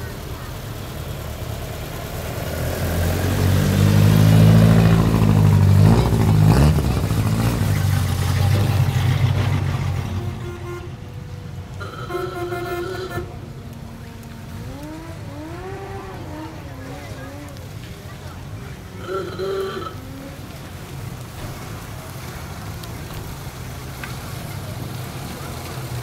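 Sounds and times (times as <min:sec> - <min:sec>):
car engine rumbling: 0:00.0 - 0:26.0
car horn toots: 0:10.0 - 0:11.2, 0:11.8 - 0:13.5.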